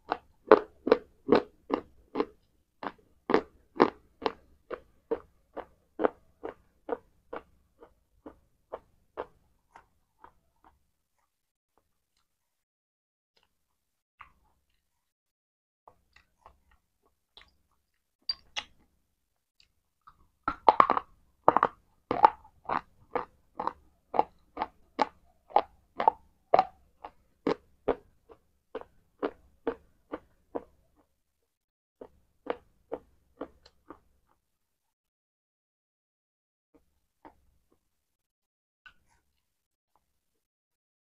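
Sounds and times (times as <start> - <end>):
crunchy chewing: 0.1 - 11.3, 19.6 - 31.1, 32.0 - 34.1.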